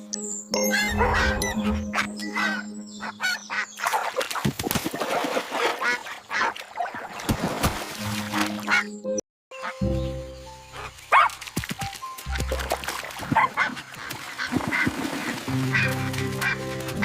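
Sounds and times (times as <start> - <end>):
background music: 0.0 - 4.0, 7.8 - 13.7, 15.1 - 17.0.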